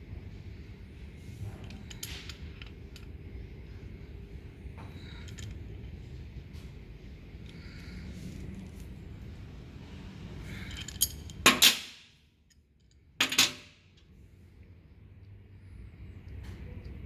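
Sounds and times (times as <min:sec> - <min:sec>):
metal tools clanking on work surface: 0:13.2 - 0:13.7.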